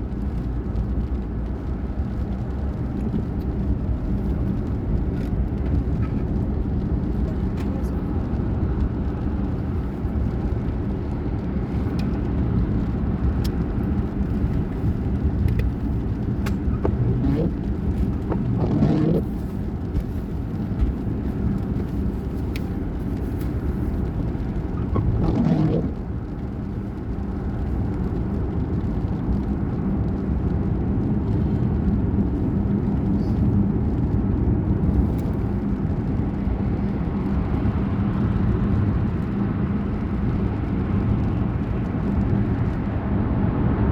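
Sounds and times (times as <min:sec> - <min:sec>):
vehicle running with low hum: 0:00.0 - 0:43.9.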